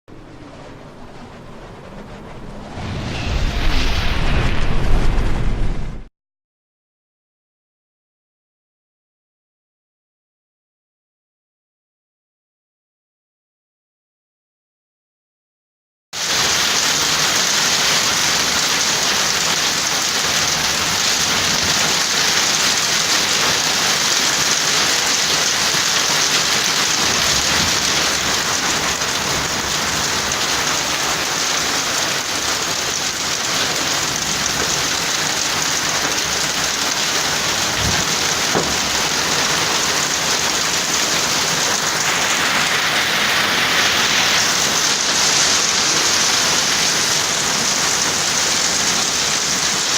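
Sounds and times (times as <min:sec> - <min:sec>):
hail and heavy rain: 0:16.2 - 0:49.9.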